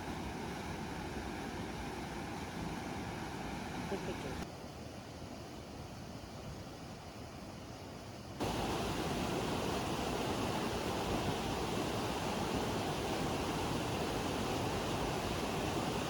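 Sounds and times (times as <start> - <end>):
stream rushing over rocks: 8.4 - 16.0.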